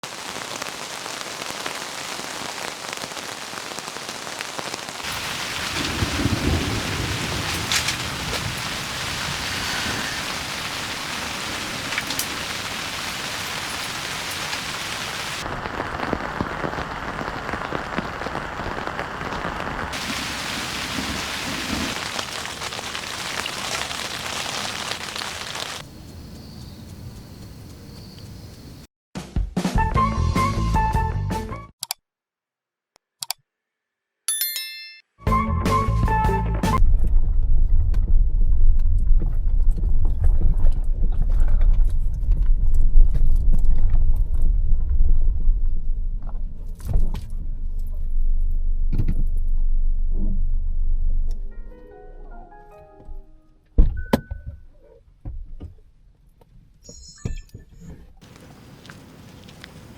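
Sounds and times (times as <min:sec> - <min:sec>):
heavy rain pouring: 0:00.0 - 0:25.9, 0:58.2 - 0:59.9
low rolls of thunder: 0:05.1 - 0:13.8, 0:20.0 - 0:24.9.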